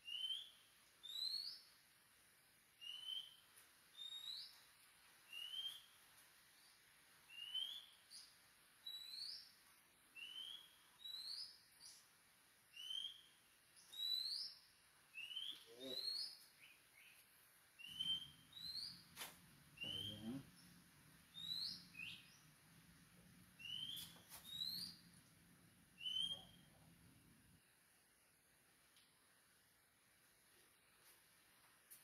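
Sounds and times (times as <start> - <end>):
bird chirping whistled notes: 0.0 - 1.7, 2.8 - 3.4, 5.3 - 6.0, 7.3 - 8.0, 10.2 - 12.0, 12.8 - 14.6, 15.2 - 17.2, 17.8 - 19.1, 19.8 - 20.4, 21.3 - 22.4, 23.6 - 25.1, 26.0 - 26.8.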